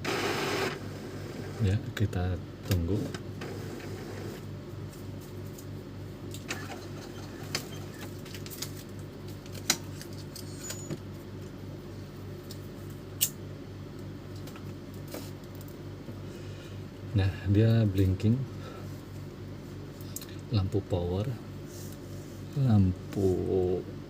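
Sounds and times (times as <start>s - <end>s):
pulsing printer motor hum: 0.0s - 1.9s, 2.8s - 4.6s, 6.4s - 8.2s.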